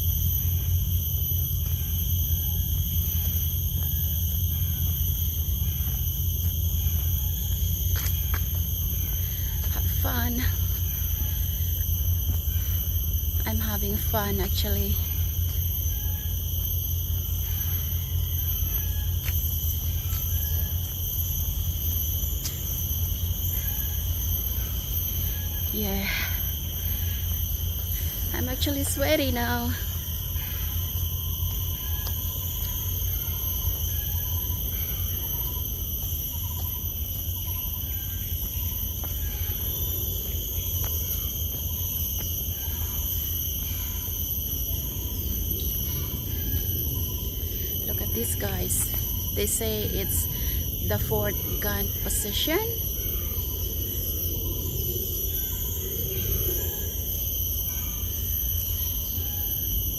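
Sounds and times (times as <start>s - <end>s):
high-pitched insect drone: 0.0s - 59.9s.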